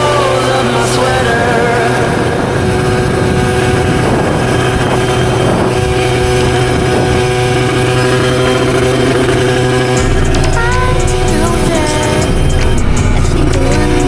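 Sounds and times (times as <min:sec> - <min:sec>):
two-stroke motorcycle engine: 0:00.0 - 0:14.0.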